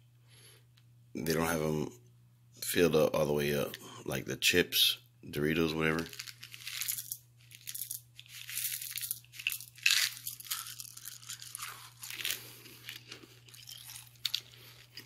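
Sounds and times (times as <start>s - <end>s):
crunching and chewing candy: 6.0s - 15.0s.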